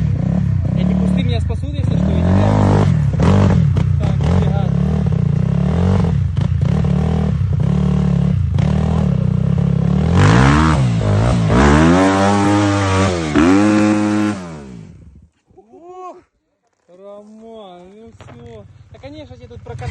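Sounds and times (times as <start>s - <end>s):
dirt bike engine revving: 0.0s - 15.2s.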